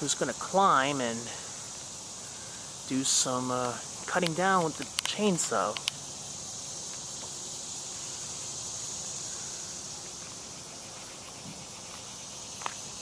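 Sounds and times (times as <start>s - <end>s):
insects buzzing: 0.0s - 13.0s
click: 5.8s - 6.0s.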